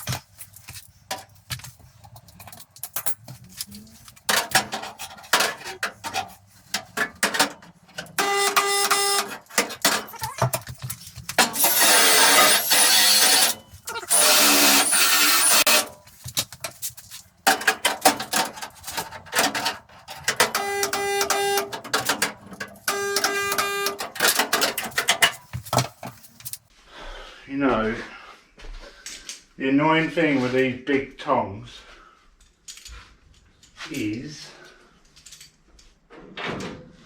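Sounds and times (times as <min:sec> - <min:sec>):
spot welder buzzing: 0:08.2 - 0:09.6, 0:11.4 - 0:16.0, 0:20.6 - 0:21.7, 0:22.8 - 0:24.2.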